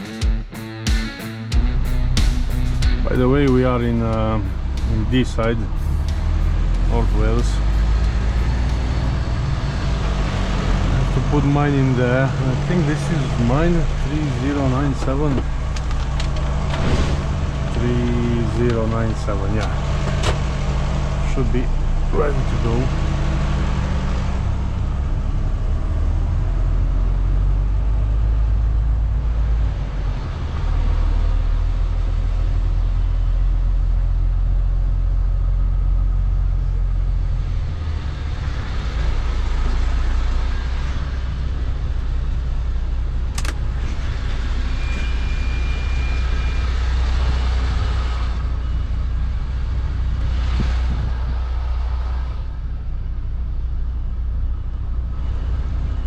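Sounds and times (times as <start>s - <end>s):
lorry diesel engine running: 1.5s - 56.0s
sharp click: 43.3s - 43.6s.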